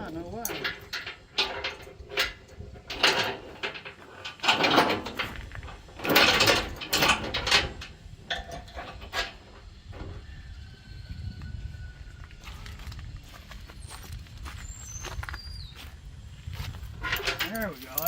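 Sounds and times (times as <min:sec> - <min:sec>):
chain scraping: 0:00.0 - 0:09.6, 0:16.9 - 0:18.0
chains clanking and rattling: 0:00.0 - 0:09.7, 0:16.9 - 0:18.0.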